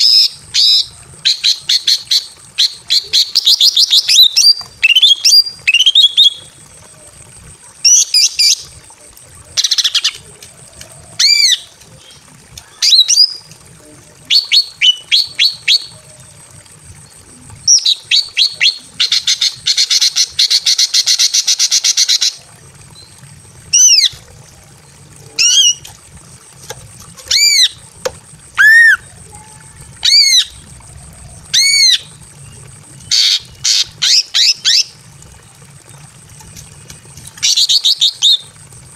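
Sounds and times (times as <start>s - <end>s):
bird giving sharp calls: 28.6s - 29.0s.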